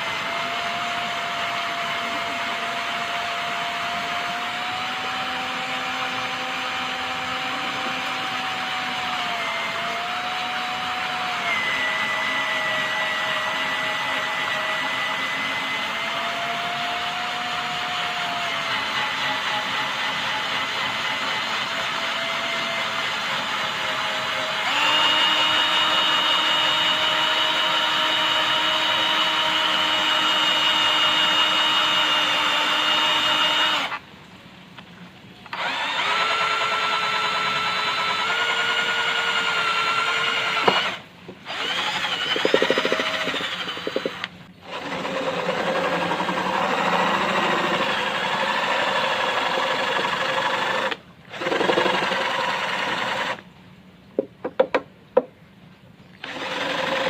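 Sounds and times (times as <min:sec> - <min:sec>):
electric drill whining: 0:00.0 - 0:34.0, 0:35.5 - 0:53.4, 0:56.2 - 0:57.0.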